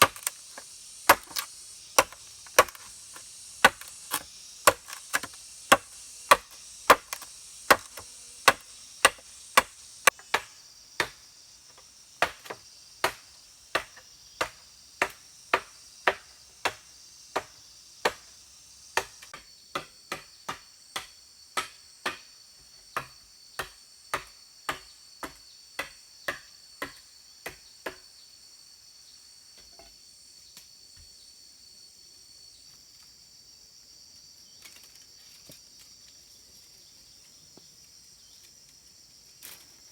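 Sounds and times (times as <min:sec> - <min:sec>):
blade chopping wood: 0:00.0 - 0:11.2, 0:12.2 - 0:16.8, 0:17.4 - 0:18.3, 0:19.0 - 0:22.2
insects buzzing: 0:00.0 - 0:39.9.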